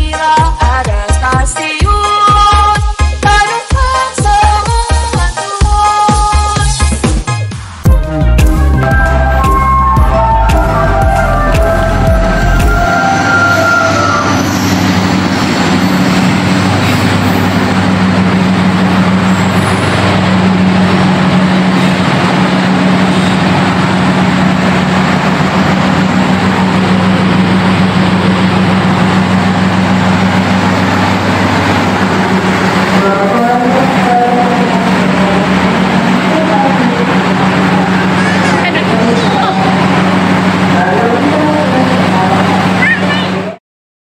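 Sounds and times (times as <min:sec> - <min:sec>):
train low hum: 0:07.9 - 0:43.6
even rushing noise: 0:09.6 - 0:42.8.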